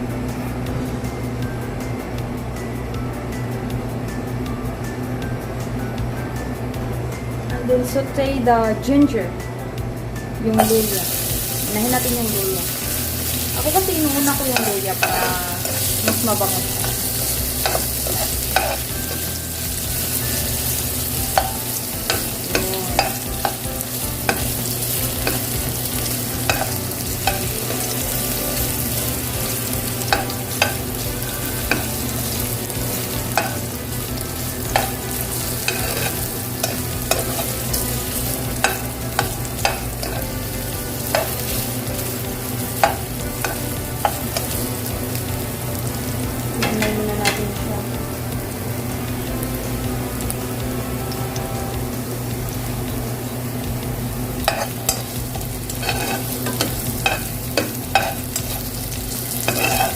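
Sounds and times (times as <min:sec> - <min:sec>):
ginger sizzling in frying pan: 0:00.0 - 0:59.9
steady low hum: 0:00.0 - 0:59.9
utensil scraping against pan: 0:12.7 - 0:40.4, 0:54.5 - 0:59.9.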